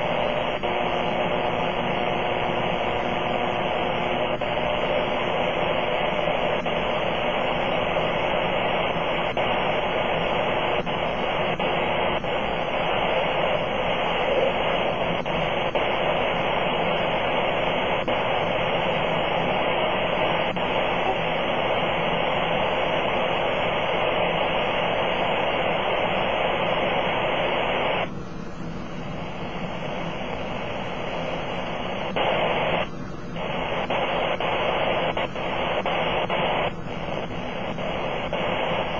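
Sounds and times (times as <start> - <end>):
radio static hiss: 0.0 - 38.9.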